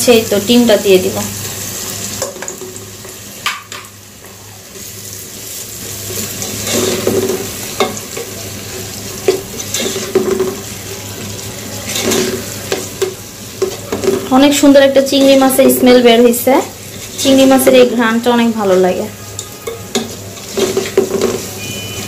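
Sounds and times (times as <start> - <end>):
food sizzling in a wok: 0.0 - 22.0
spatula scraping and clicking a pan: 5.5 - 8.4, 9.2 - 10.7, 11.8 - 14.4, 19.3 - 21.5.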